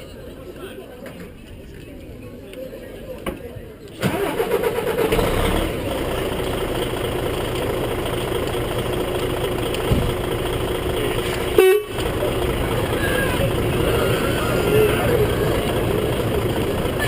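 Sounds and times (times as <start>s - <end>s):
truck engine running: 4.1s - 17.0s
loud horn blast: 11.5s - 12.2s.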